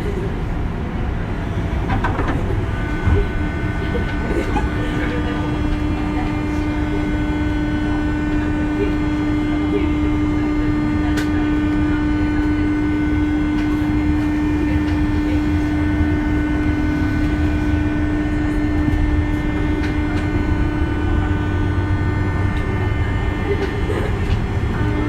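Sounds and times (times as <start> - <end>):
constant humming tone: 0.0 - 25.0
train running rumble: 0.0 - 25.0.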